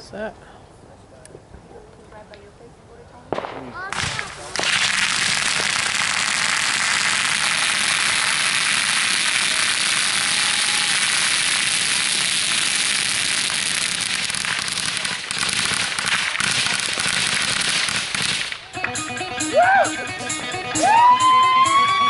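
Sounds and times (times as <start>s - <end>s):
fireworks crackling: 3.2s - 19.0s.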